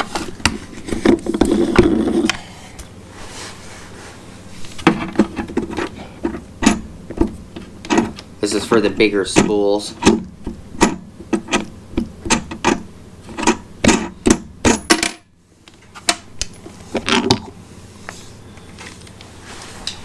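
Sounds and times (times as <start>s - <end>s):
clicks and knocks of metal parts: 10.8s - 17.5s.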